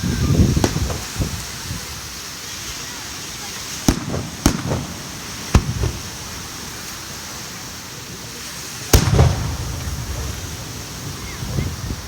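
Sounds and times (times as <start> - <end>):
fireworks bangs with rumbling echo: 0.0 - 2.0, 3.7 - 6.9, 8.8 - 12.0
steady background hiss: 0.0 - 12.0.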